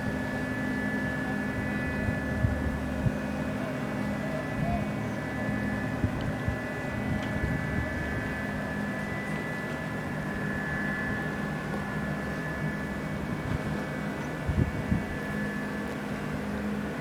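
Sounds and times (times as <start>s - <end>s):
ship engines droning: 0.0s - 17.0s
steady high whine: 0.0s - 17.0s.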